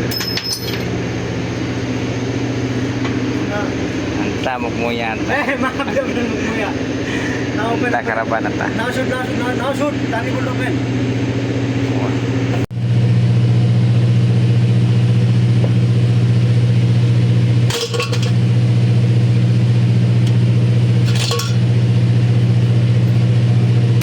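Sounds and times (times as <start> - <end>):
low machine drone: 0.0 - 24.0
metallic tool clinks: 0.1 - 0.9.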